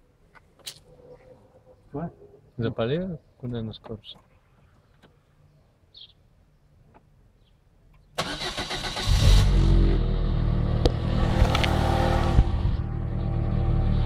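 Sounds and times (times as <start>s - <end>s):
car engine running: 9.3s - 14.0s.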